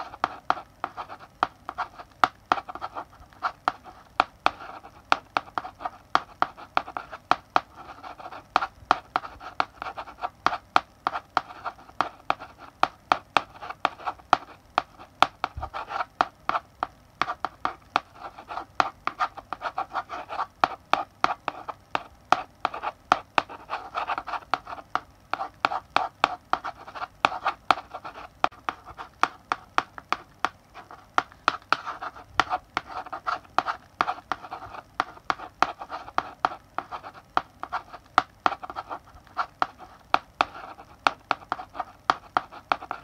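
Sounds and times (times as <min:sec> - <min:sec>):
chalk tapping on blackboard: 0:00.0 - 0:43.0.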